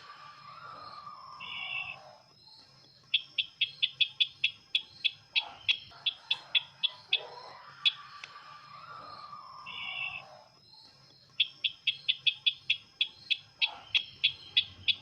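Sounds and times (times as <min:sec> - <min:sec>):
bird calling with sharp high chips: 0:00.0 - 0:02.2, 0:03.0 - 0:10.5, 0:11.3 - 0:15.0.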